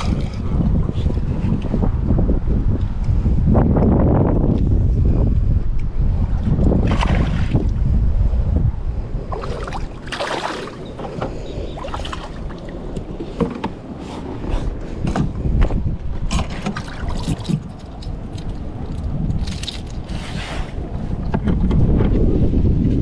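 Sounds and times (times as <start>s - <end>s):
wind rumbling on microphone: 0.0s - 23.0s
water swishing: 9.2s - 13.2s.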